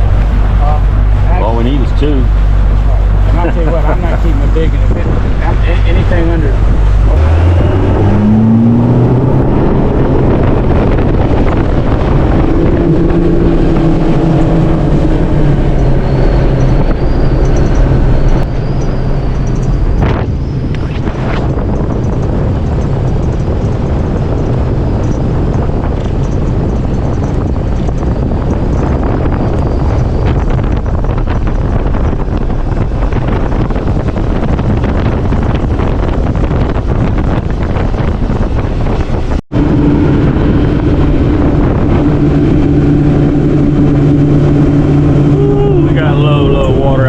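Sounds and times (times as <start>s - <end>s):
outboard motor running: 0.0s - 20.3s, 39.5s - 47.0s
wind buffeting microphone: 0.0s - 47.0s.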